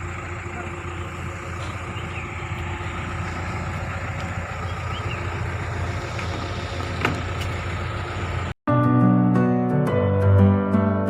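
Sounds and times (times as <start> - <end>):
excavator diesel engine running: 0.0 - 8.6.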